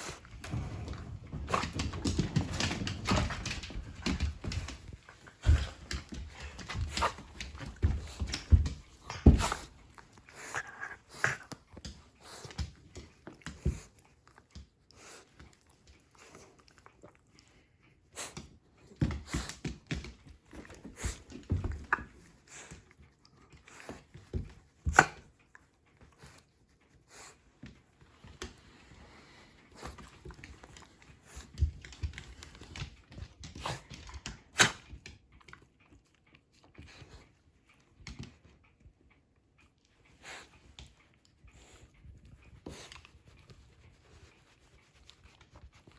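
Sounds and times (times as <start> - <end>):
dog panting: 0.0 - 34.4.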